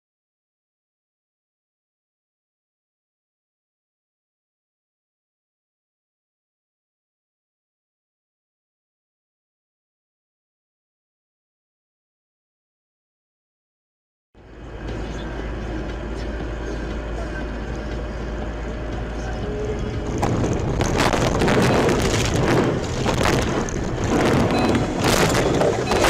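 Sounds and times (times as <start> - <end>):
road and engine rumble: 14.4 - 26.0.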